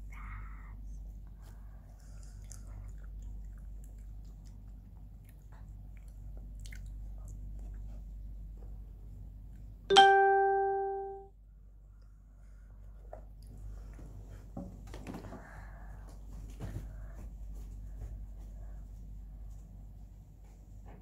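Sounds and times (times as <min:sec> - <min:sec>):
low steady hum: 0:00.0 - 0:21.0
chewing doughnuts: 0:02.0 - 0:07.9
bell-like chime: 0:09.9 - 0:11.2.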